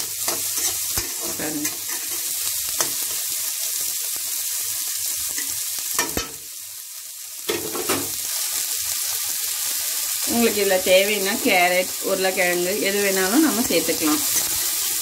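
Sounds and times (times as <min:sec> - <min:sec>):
vegetables sizzling in oil: 0:00.0 - 0:15.0
spatula scraping a metal pan: 0:00.2 - 0:03.1, 0:14.3 - 0:14.8.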